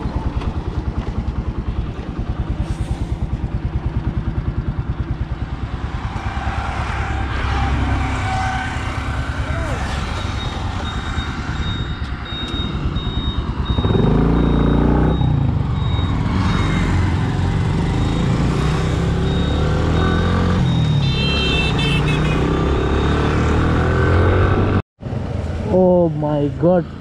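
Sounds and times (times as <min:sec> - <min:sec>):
wind and road noise: 0:00.0 - 0:27.0
motorcycle engine accelerating: 0:08.9 - 0:24.8
high-pitched beeping: 0:09.2 - 0:24.5.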